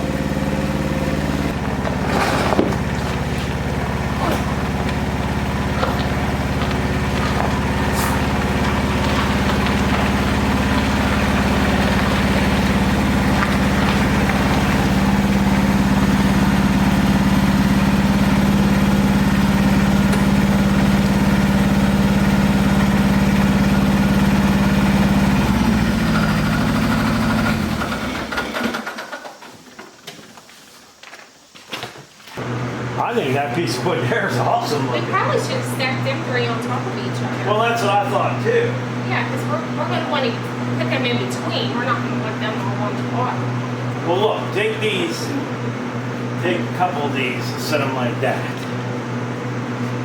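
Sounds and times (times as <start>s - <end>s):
engine idling and shutting off: 0.0s - 30.2s, 31.0s - 50.0s.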